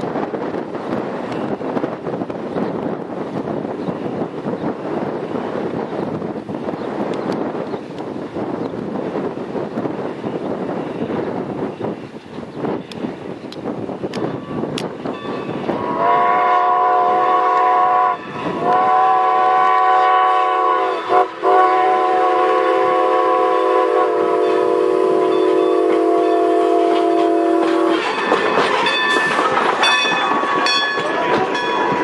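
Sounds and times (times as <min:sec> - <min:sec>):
train clanking over rails: 0:00.0 - 0:32.0
steam whistle blowing: 0:15.7 - 0:28.0.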